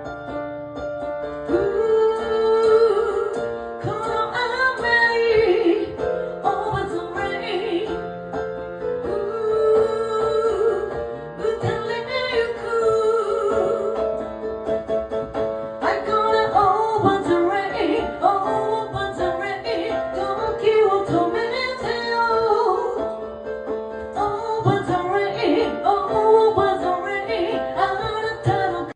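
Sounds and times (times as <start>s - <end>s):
piano chords: 0.0s - 28.9s
woman singing: 1.5s - 8.2s, 9.0s - 14.3s, 15.8s - 23.1s, 24.1s - 28.9s.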